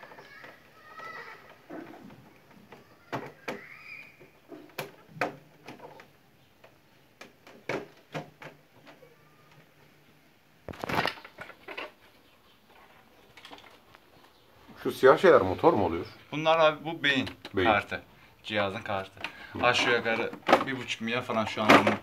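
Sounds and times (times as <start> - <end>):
clicks and knocks of parts: 4.5 - 9.8, 10.7 - 12.1, 12.7 - 14.4, 19.1 - 22.0.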